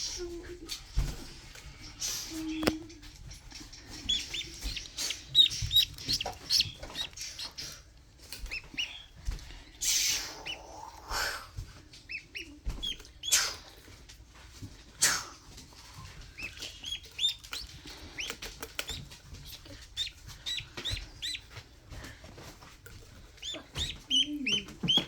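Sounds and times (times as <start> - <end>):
rustling: 0.8 - 10.8, 11.6 - 25.0
duckling peeping: 2.0 - 11.2, 11.9 - 13.7, 16.0 - 21.7, 23.0 - 25.0.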